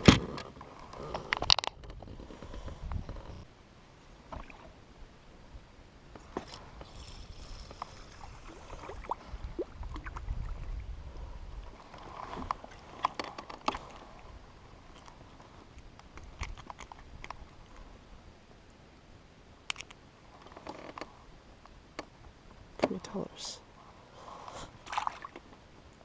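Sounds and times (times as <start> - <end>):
knocks and clicks of kayak gear: 0.0 - 3.4, 12.3 - 13.9, 19.7 - 21.1
faint water hiss: 2.3 - 13.1, 21.0 - 26.0.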